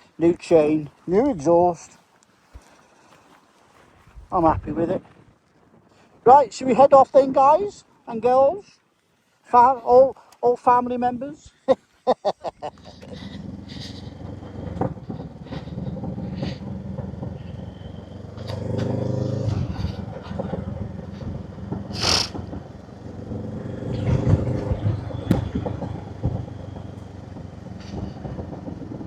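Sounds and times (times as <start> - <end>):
motorcycle engine revving: 12.7 - 29.0.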